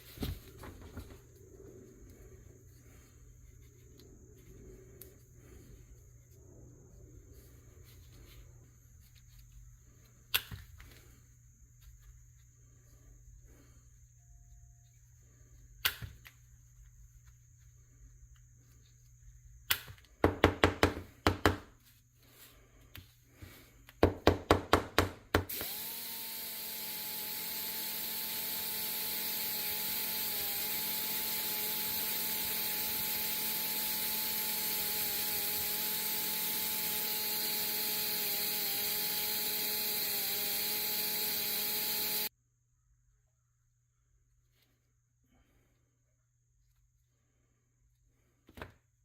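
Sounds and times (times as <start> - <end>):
power tool running: 25.4 - 42.3.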